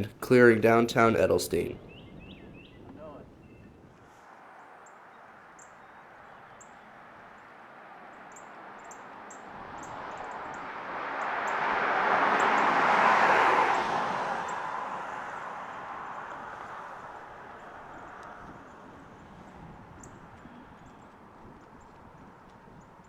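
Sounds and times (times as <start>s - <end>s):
small birds chirping: 1.8s - 11.6s, 15.3s - 23.0s
vehicle passing by: 4.1s - 23.0s.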